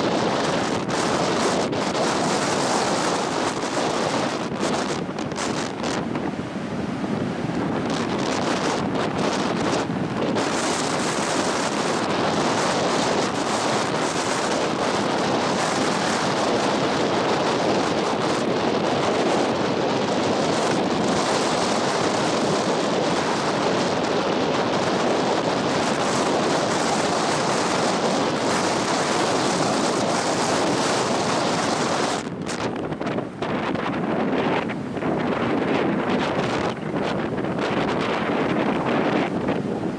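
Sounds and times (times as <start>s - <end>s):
surf washing on beach: 0.0s - 39.9s
wind blowing across microphone: 0.0s - 39.9s.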